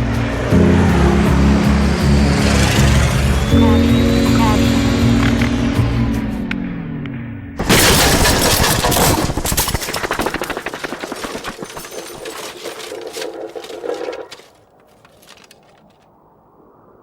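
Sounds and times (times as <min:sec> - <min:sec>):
loud crash: 0:07.6 - 0:14.4
rattle of sharp cracks: 0:07.6 - 0:16.1.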